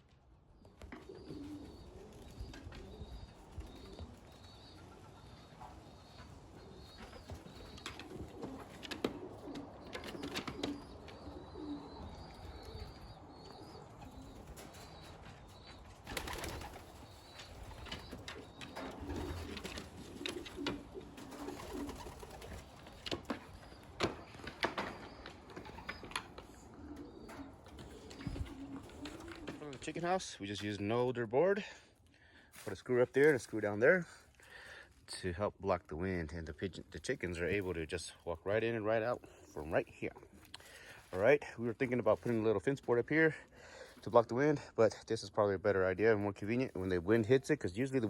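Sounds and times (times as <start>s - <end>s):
pigeons cooing: 0.6s - 30.2s.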